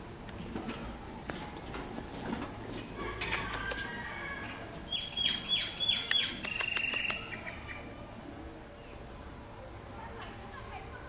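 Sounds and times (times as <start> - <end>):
bird chirping and trilling: 4.9 - 7.9.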